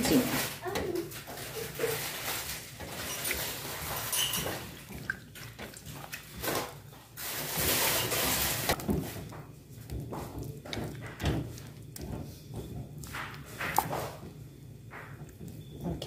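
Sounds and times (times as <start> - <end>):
liquid simmering in a pan: 0.8 - 16.0.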